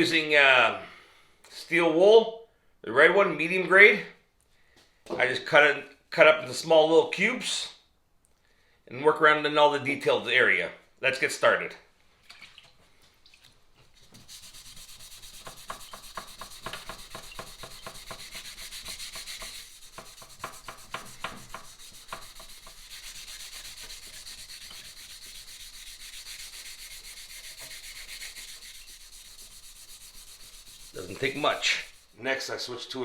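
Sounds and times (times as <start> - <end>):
steel wool scrubbing metal: 14.2 - 32.5.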